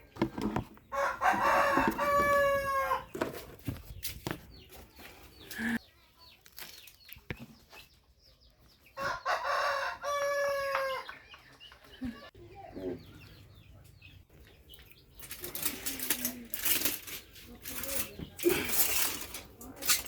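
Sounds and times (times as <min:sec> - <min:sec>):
rooster crowing: 0:00.9 - 0:03.1, 0:09.0 - 0:11.1.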